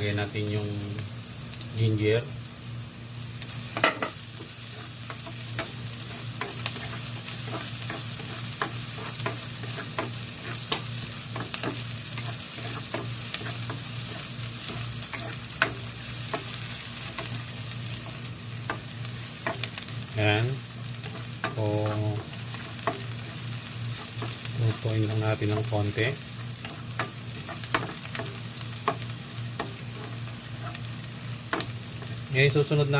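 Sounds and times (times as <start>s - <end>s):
food sizzling in oil: 0.0s - 32.9s
spatula scraping a pan: 3.8s - 19.8s, 26.6s - 30.9s.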